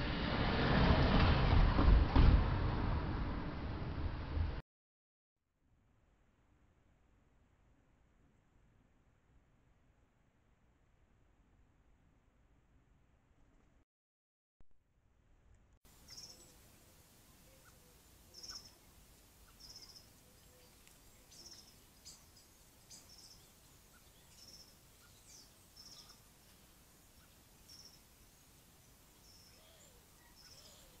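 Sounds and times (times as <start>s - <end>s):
high-pitched bird calls: 17.4s - 18.8s, 29.2s - 31.0s.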